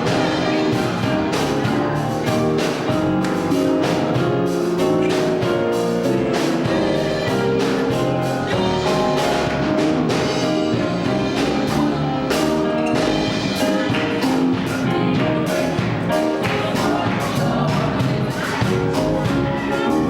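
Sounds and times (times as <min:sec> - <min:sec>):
drum kit beat: 0:00.0 - 0:20.0
keyboard chords: 0:00.0 - 0:20.0.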